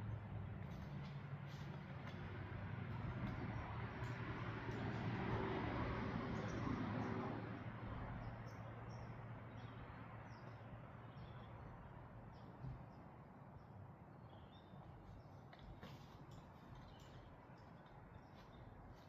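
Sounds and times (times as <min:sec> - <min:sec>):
small birds chirping: 0:06.4 - 0:19.0.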